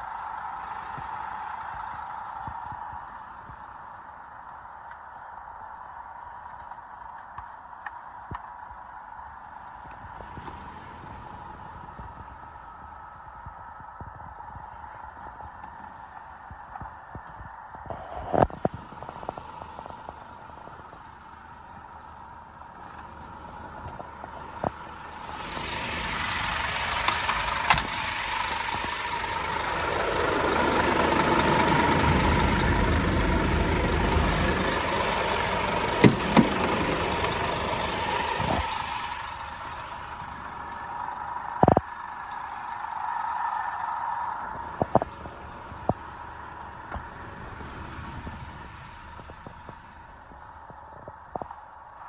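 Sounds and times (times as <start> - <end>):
truck diesel engine running: 0.0 - 5.1, 17.7 - 52.0
steady whine: 11.8 - 52.0.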